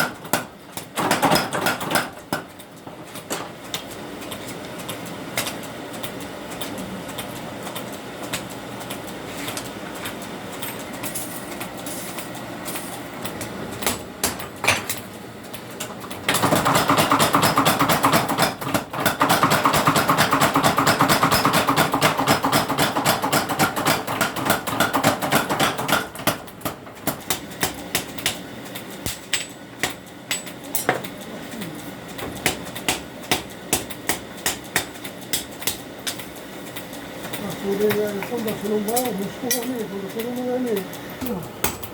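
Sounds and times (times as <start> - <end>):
machine hum: 26.2 - 41.9
hammer strikes on steel: 29.1 - 31.1.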